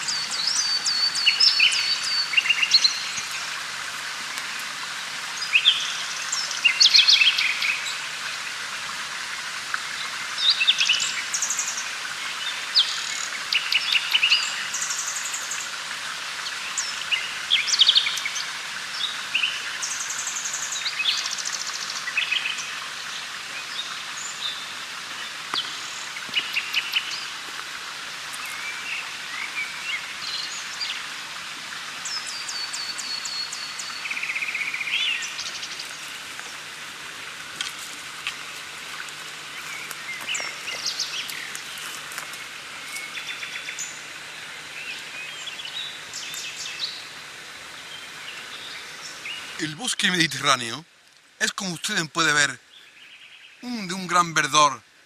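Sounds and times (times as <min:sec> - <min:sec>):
birds chirping and trilling: 0:00.0 - 0:03.4, 0:16.4 - 0:27.4, 0:32.0 - 0:36.6, 0:39.5 - 0:47.2
steady hiss: 0:00.0 - 0:55.0.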